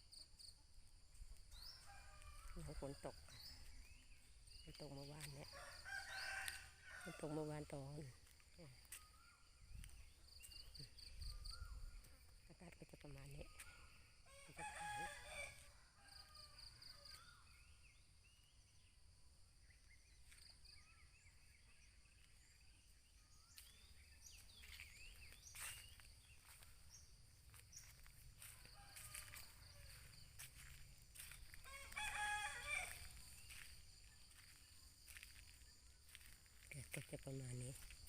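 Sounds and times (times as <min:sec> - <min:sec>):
rooster crowing: 0:05.5 - 0:07.4, 0:14.3 - 0:16.6, 0:28.4 - 0:33.6.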